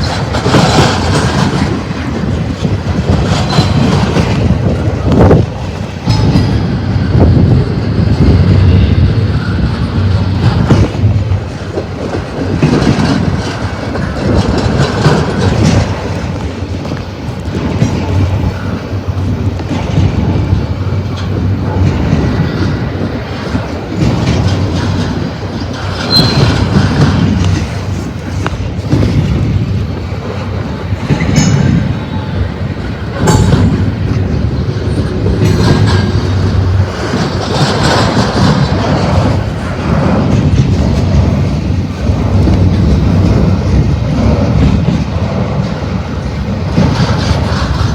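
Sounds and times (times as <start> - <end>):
train wheels clacking on rails: 0.0 - 47.9
high wheel squeals: 25.9 - 27.0.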